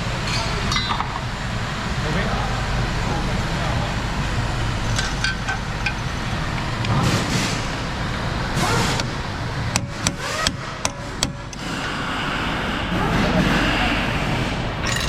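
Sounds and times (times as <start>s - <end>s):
workshop background noise: 0.0s - 15.0s
sharp knocks: 9.7s - 11.6s.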